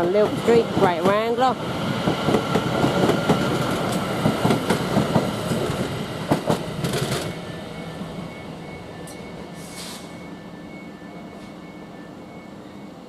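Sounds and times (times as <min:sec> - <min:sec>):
train wheels clattering over rail joints: 0:02.0 - 0:07.4.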